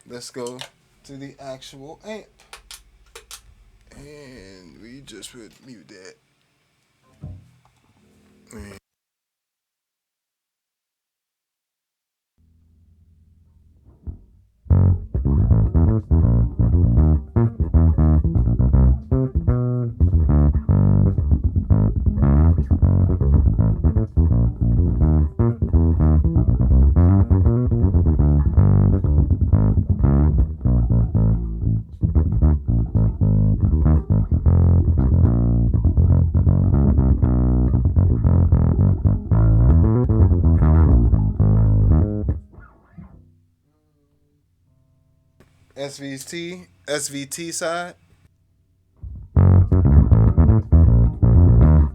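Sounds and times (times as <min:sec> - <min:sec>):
electric bass guitar: 0:12.4 - 0:43.4, 0:49.0 - 0:51.9.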